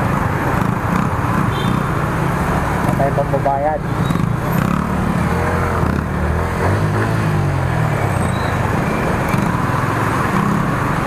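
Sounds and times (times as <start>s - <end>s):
wind and road noise: 0.0s - 11.0s
motorcycle engine accelerating: 4.0s - 11.0s.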